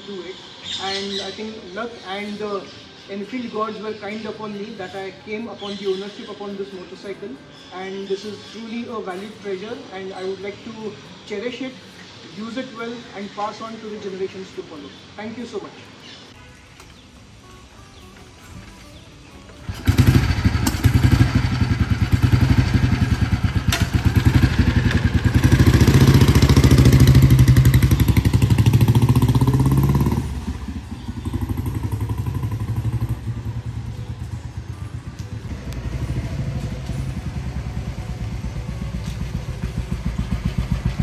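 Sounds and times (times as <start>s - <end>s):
motorcycle engine pulsing beat: 19.6s - 41.0s.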